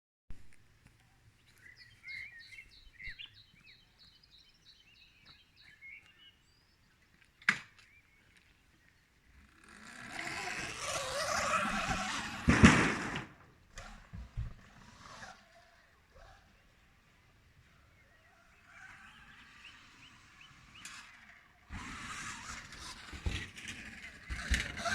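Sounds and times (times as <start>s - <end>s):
electric motorbike passing: 9.3s - 24.9s.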